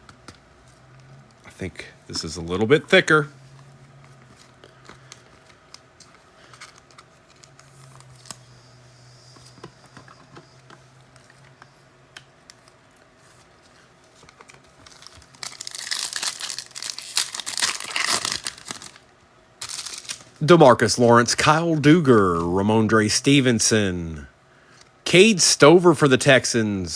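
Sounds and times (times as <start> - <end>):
cards and packaging clicking: 4.0 - 8.4, 14.1 - 19.0, 19.6 - 20.3
foil wrapper crinkling and tearing: 14.2 - 20.4.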